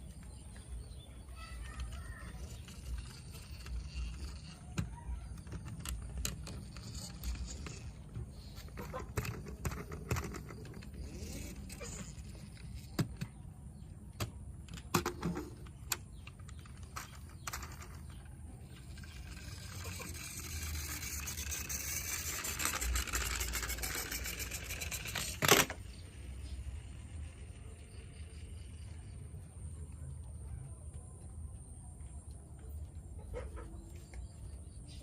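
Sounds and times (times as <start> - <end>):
plastic toys clicking and knocking: 1.3 - 13.4, 14.1 - 27.5.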